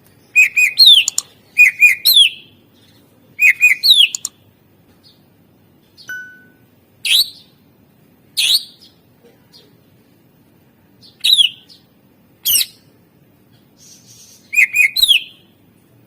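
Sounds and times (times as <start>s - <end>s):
bird singing: 0.2s - 4.3s, 5.9s - 7.6s, 11.0s - 11.9s, 13.9s - 15.5s.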